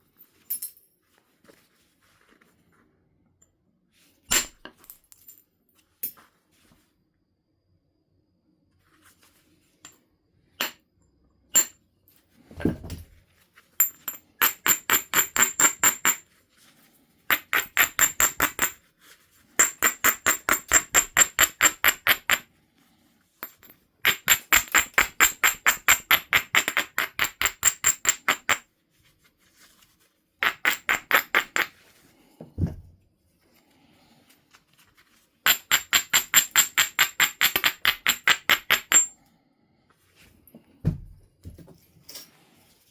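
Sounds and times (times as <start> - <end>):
dull thumps: 32.5 - 33.0, 40.8 - 41.6.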